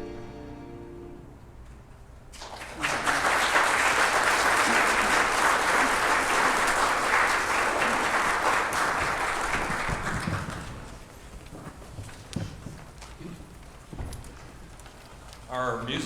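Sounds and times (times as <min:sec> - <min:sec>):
audience applauding: 0:02.3 - 0:11.4.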